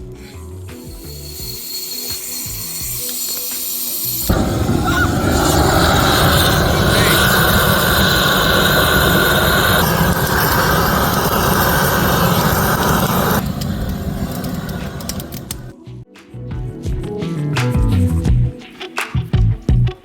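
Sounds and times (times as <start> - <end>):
road vehicle driving: 4.3 - 15.7.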